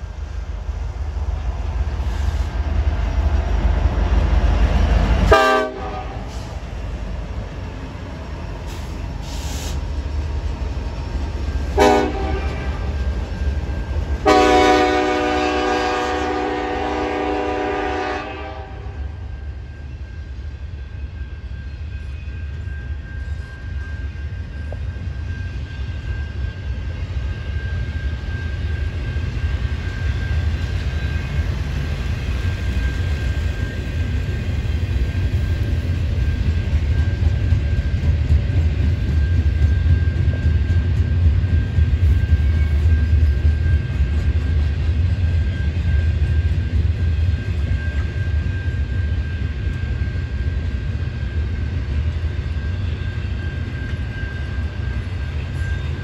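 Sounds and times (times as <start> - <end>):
freight train low rumble: 0.0 - 56.0
locomotive air horn chord: 5.3 - 6.6, 11.8 - 12.9, 14.2 - 19.2.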